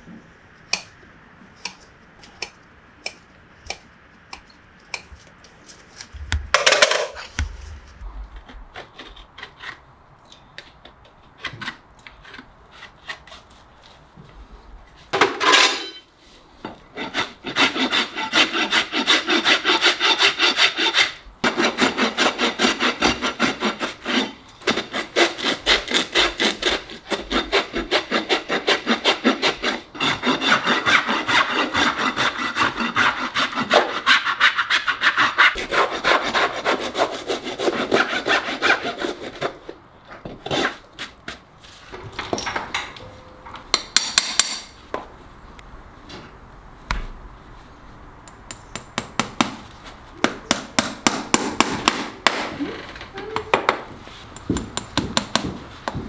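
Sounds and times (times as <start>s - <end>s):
scrapes and knocks: 5.0s - 9.8s
rasp filing hoof: 16.9s - 39.7s.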